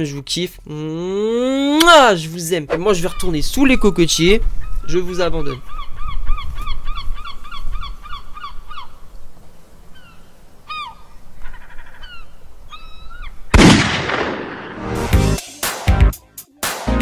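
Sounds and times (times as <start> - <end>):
honking bird calls: 2.7 - 9.1, 9.9 - 13.5.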